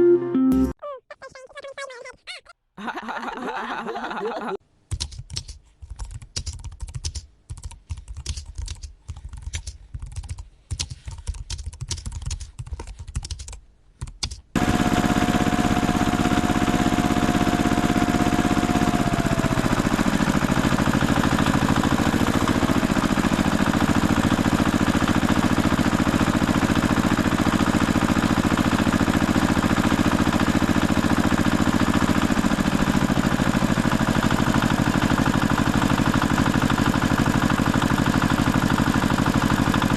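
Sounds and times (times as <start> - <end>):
tractor engine drone: 14.6 - 39.9.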